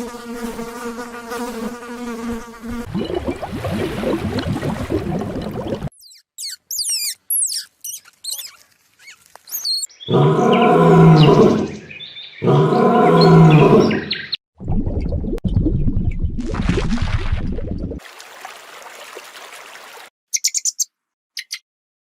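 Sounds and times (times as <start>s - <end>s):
bird chirps and whistles: 6.0s - 8.5s, 9.5s - 10.2s, 20.3s - 21.6s
low animal calls: 10.1s - 14.2s.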